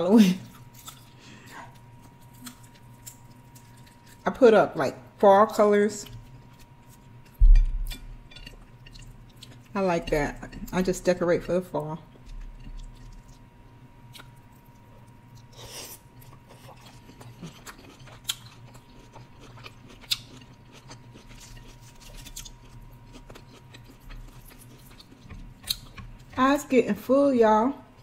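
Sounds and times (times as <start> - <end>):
wet chewing sounds: 0.4 - 4.2, 6.0 - 9.8, 12.1 - 26.4.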